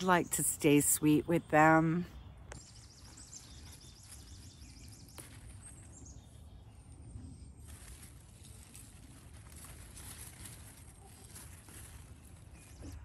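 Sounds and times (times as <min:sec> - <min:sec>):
outdoor garden ambience: 0:00.0 - 0:13.0
small bird singing falling notes: 0:02.1 - 0:07.7.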